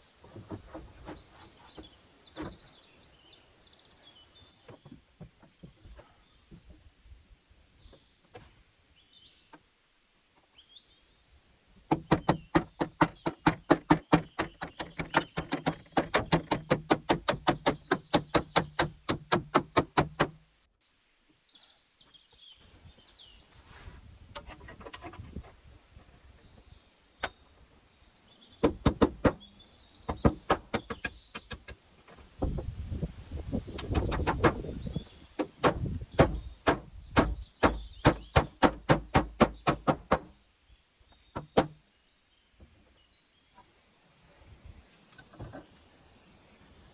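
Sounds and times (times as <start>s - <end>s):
birds chirping faintly: 0.0s - 46.9s
rapid even knocking: 11.9s - 20.4s, 33.8s - 34.7s.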